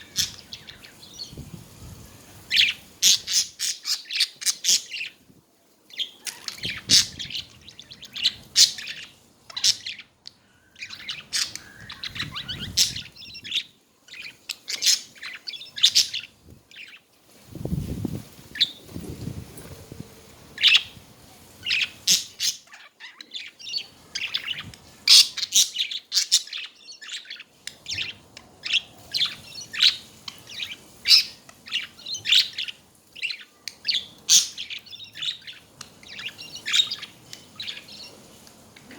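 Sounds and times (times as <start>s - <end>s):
budgerigars chattering: 0.0s - 1.0s, 10.8s - 17.0s, 21.6s - 38.1s.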